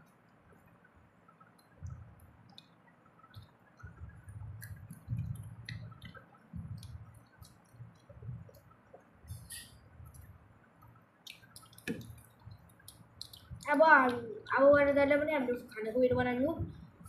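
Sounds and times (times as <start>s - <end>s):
chewing with wet clicks: 1.3s - 14.6s
soft low thudding: 3.3s - 7.2s.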